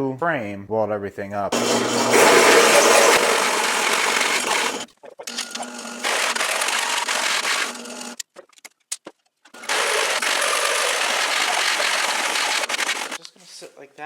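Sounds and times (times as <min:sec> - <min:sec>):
electric drill cutting steel: 0:01.6 - 0:08.2, 0:09.6 - 0:13.2.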